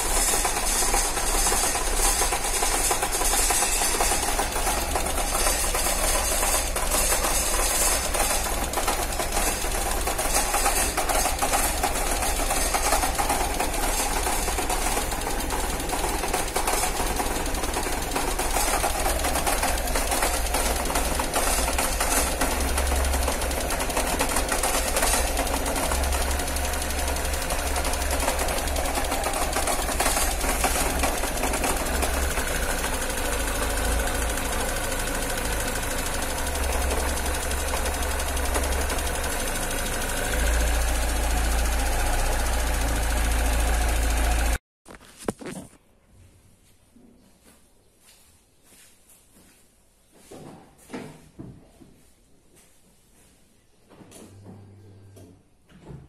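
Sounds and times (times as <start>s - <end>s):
car engine idling with clicking clatter: 0.0s - 44.6s.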